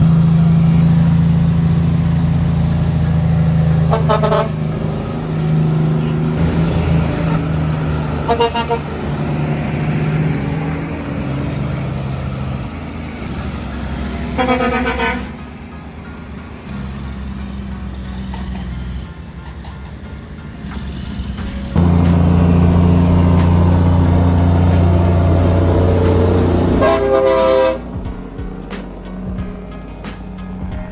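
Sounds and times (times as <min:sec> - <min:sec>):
truck horn blasts: 0:00.0 - 0:16.9, 0:21.8 - 0:28.4
truck engine droning: 0:00.0 - 0:30.9.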